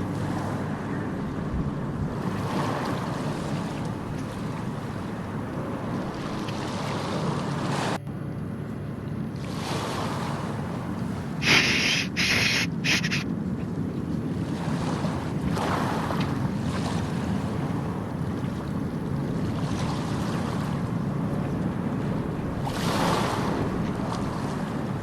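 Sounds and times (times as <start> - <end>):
harsh noise bursts: 11.4 - 13.2.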